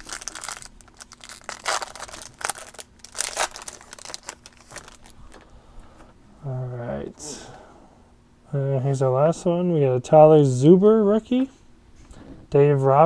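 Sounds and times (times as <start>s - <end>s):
wrapper tearing and crinkling: 0.0s - 5.4s.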